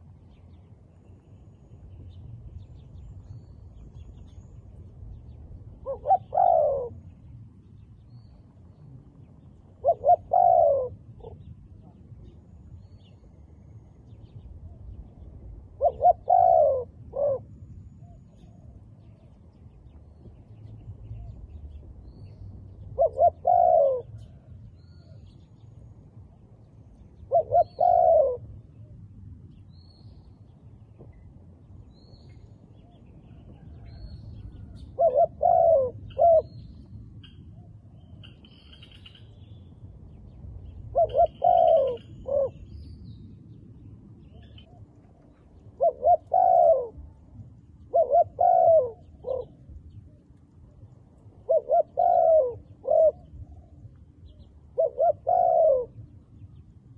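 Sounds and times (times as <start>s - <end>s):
dove cooing: 5.7s - 7.3s, 9.6s - 13.1s, 15.6s - 19.3s, 22.7s - 25.2s, 27.2s - 29.0s, 33.4s - 36.7s, 40.8s - 42.9s, 44.4s - 49.7s, 51.2s - 56.1s.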